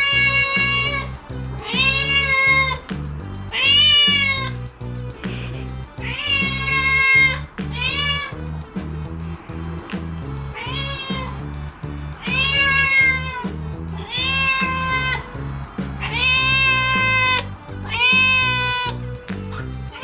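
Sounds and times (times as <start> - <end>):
cat meowing loudly: 0.0 - 2.9, 3.5 - 4.6, 6.0 - 8.3, 10.6 - 11.4, 12.2 - 15.3, 16.0 - 19.0.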